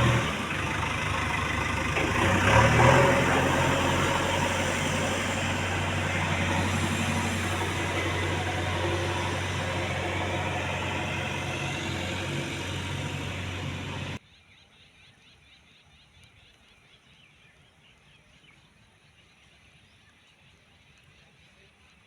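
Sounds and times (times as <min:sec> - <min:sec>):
diesel engine running: 0:00.0 - 0:14.2.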